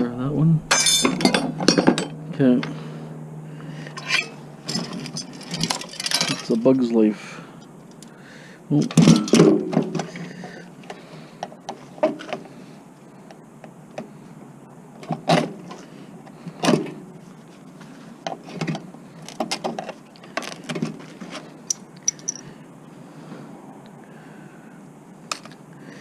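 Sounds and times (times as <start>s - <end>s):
hand tools clattering: 0.7s - 2.8s, 3.9s - 6.7s, 8.8s - 10.6s, 18.3s - 22.5s
small parts clicking: 21.6s - 22.5s.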